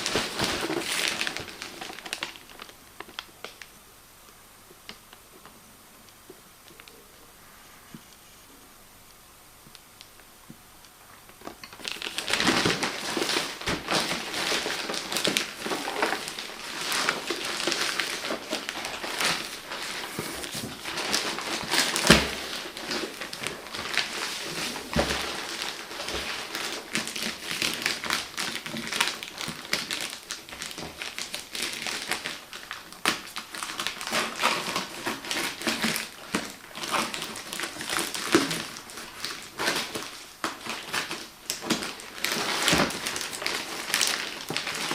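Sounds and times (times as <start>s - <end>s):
packaging crinkling and rustling: 0.0s - 3.8s, 11.2s - 44.9s.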